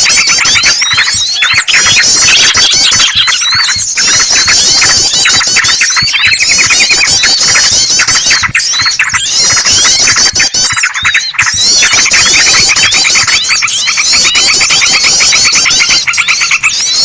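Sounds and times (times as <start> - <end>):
bird distress calls: 0.0 - 17.0
bulbul chatter: 0.0 - 17.0.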